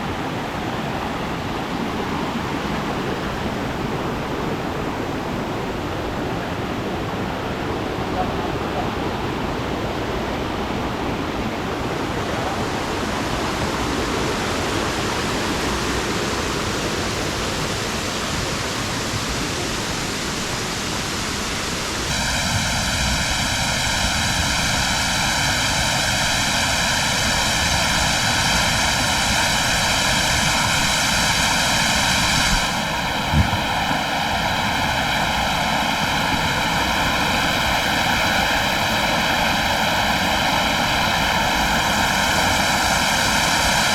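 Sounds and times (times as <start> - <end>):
waterfall rushing: 0.0 - 43.9
brief thump: 33.3 - 33.7.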